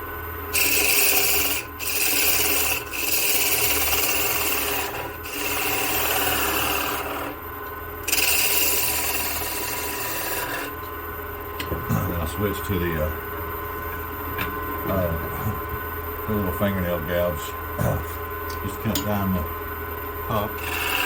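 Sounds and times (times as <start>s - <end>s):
wood lathe humming: 0.5s - 7.4s, 8.0s - 10.8s, 20.4s - 21.0s
gouge shaving spinning wood: 0.6s - 7.4s, 8.1s - 10.8s, 20.6s - 21.0s.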